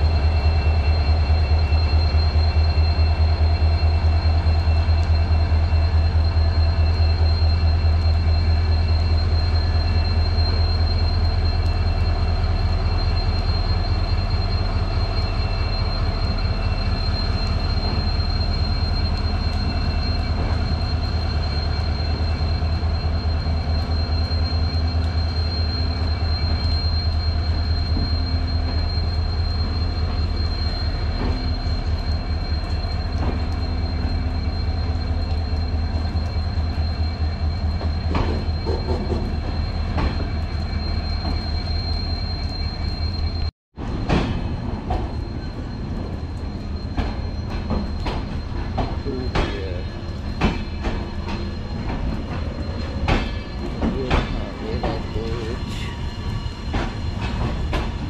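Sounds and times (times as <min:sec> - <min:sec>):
low hum of passing train: 0:00.0 - 0:58.0.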